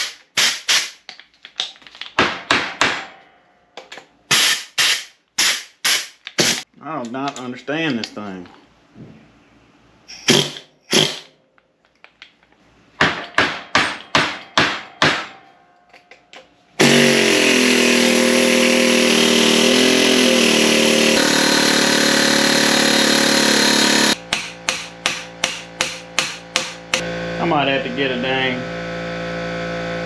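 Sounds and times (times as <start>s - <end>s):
machine motor running: 16.8s - 24.2s, 26.9s - 30.0s.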